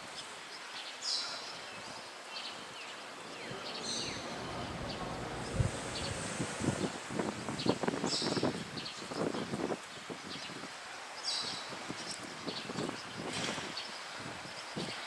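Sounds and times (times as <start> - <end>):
bird chirps: 2.3 - 6.2
wind rumble on microphone: 3.3 - 10.8, 11.4 - 15.0.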